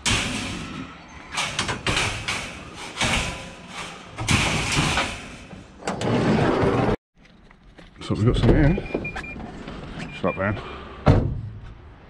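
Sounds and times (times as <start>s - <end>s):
scrap metal scraping and clattering: 0.0s - 7.0s.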